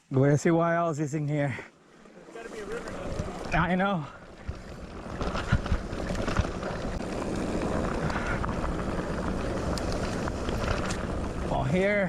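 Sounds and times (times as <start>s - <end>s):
bike tyres on dirt trail: 1.0s - 12.0s.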